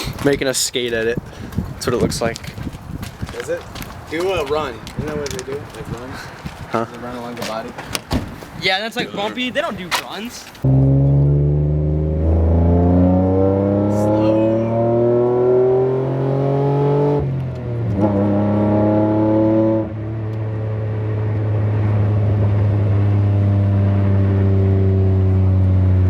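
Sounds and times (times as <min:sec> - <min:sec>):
car engine accelerating: 0:10.6 - 0:26.0.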